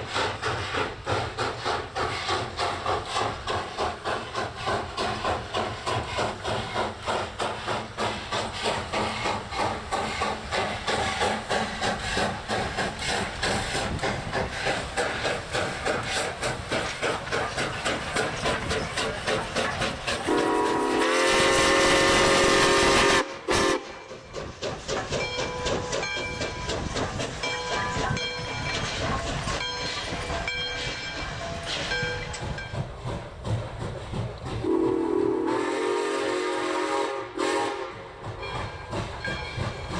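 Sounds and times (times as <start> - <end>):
steam locomotive exhaust beating: 0.0 - 39.9
steam whistle chord: 20.3 - 23.9, 34.7 - 37.9.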